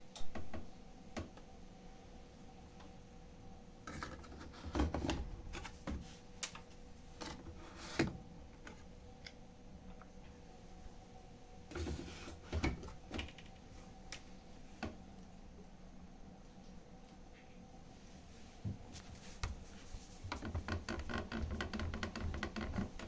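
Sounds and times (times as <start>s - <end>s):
washing machine clicks and rattles: 0.0s - 1.4s, 11.7s - 13.7s
washing machine hum: 0.0s - 23.0s.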